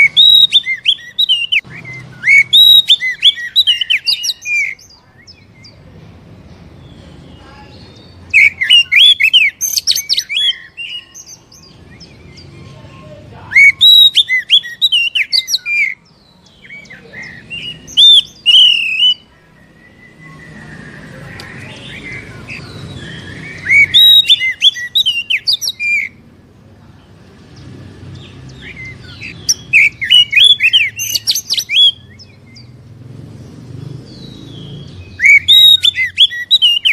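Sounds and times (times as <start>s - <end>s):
bird singing high notes: 0.0s - 5.6s, 7.2s - 26.2s, 34.1s - 36.9s.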